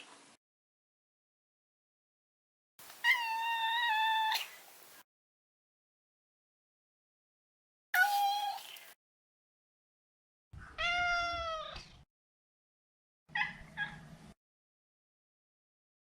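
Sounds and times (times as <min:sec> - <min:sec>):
cat meowing: 0:10.7 - 0:11.9.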